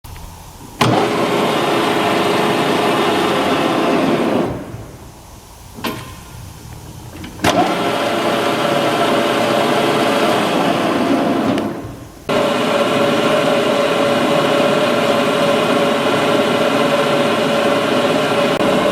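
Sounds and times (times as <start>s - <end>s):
lathe running: 0.8s - 6.0s, 7.2s - 18.9s
click: 11.5s - 11.7s.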